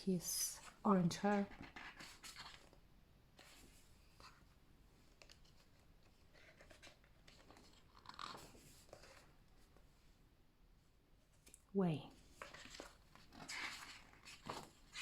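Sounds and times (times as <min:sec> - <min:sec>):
paper pages rustling: 0:00.6 - 0:02.8, 0:05.1 - 0:09.9, 0:12.3 - 0:15.0.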